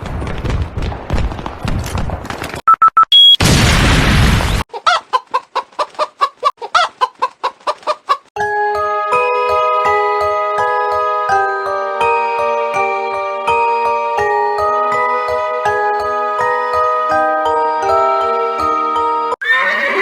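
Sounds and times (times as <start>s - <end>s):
short electronic beeps: 2.7s - 3.4s
chicken clucking: 4.7s - 8.3s
chiming melody: 8.4s - 19.4s.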